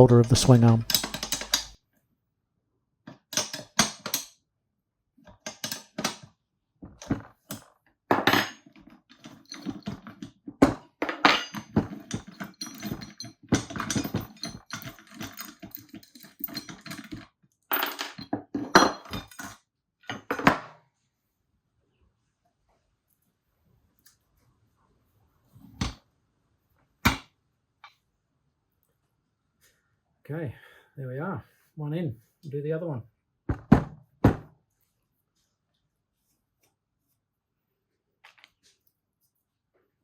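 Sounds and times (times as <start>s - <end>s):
metal tools clinking and grating: 0.0s - 1.8s, 8.4s - 10.2s, 11.2s - 17.2s.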